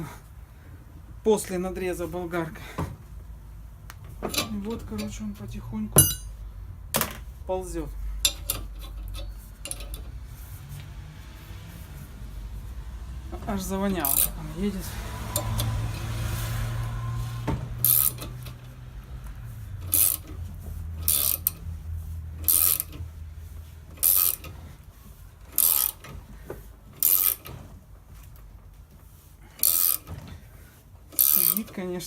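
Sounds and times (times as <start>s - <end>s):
low steady hum: 0.0s - 32.0s
ratcheting hand tool: 8.2s - 10.3s, 13.9s - 16.9s, 17.8s - 21.7s, 22.4s - 23.1s, 23.9s - 24.8s, 25.4s - 27.7s, 29.5s - 31.9s.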